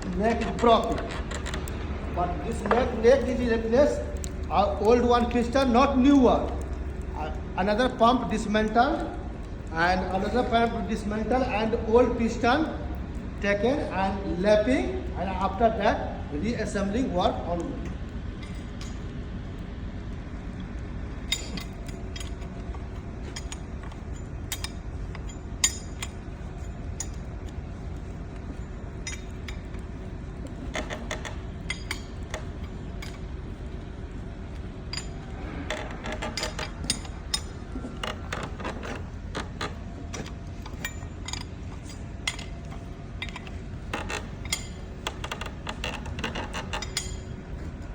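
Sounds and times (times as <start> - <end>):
metal parts and tools clinking: 0.0 - 4.6, 21.3 - 27.3, 28.5 - 29.9, 30.5 - 33.3, 34.8 - 47.7
steady low hum: 0.0 - 47.9.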